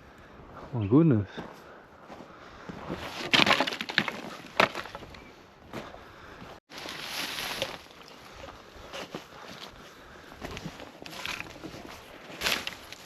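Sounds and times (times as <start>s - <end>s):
crunching and rustling: 2.9s - 5.3s, 6.7s - 13.0s
sticks cracking and snapping: 12.3s - 13.0s.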